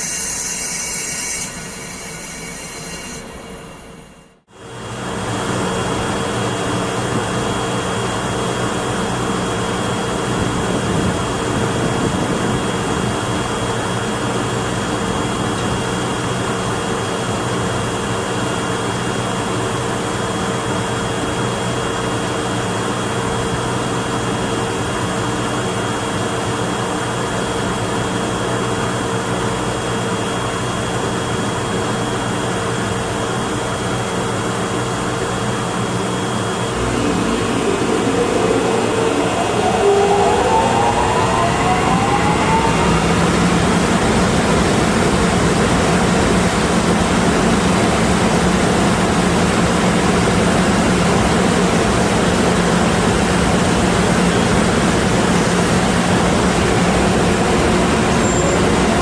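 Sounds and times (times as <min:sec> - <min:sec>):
machine drone: 0:34.8 - 0:59.0
steady held tones: 0:36.3 - 0:45.6.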